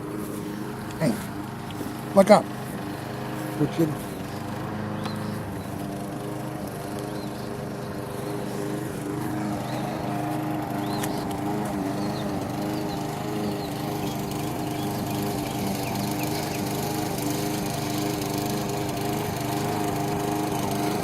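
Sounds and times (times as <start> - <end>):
small engine running: 0.0 - 21.0
high bird chirps: 3.4 - 17.0.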